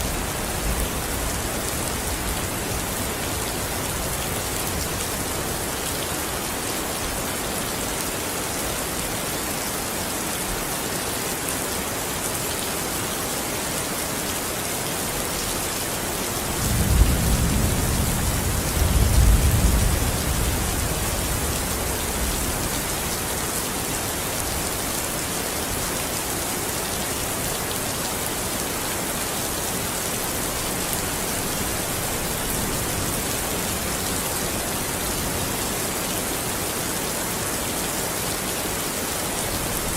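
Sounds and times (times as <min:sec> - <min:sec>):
rain falling: 0:00.0 - 0:39.9
thunder rumbling: 0:16.5 - 0:22.6.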